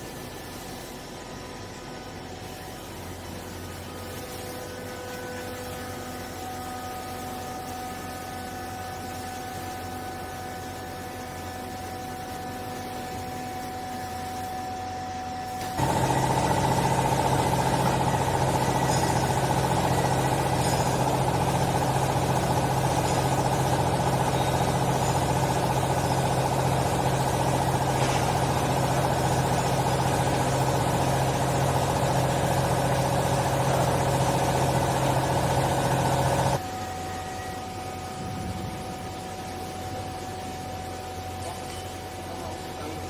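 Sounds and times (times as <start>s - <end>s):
hydraulic pump humming and whining: 0.0s - 43.0s.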